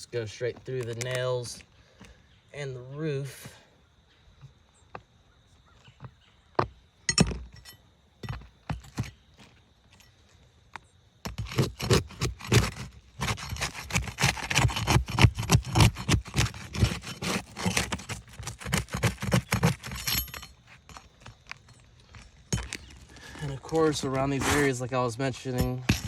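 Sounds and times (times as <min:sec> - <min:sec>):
tool scraping roof shingles: 0:11.2 - 0:26.0.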